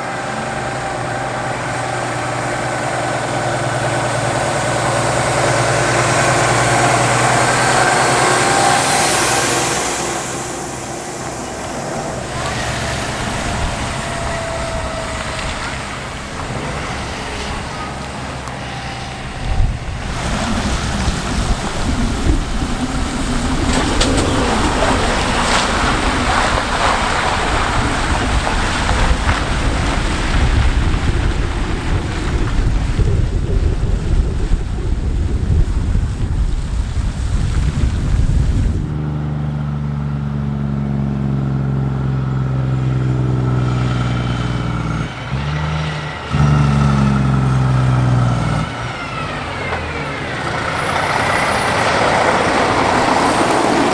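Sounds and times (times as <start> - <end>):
wind noise on microphone: 0.0 - 39.5
diesel engine droning: 0.0 - 53.9
diesel truck driving past: 0.0 - 53.9.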